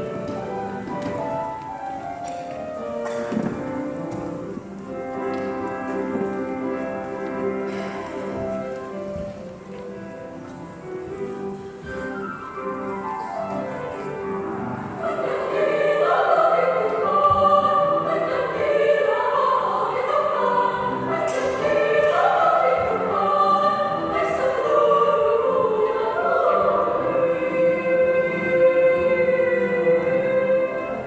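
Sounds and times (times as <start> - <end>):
choir singing: 12.0 - 31.0.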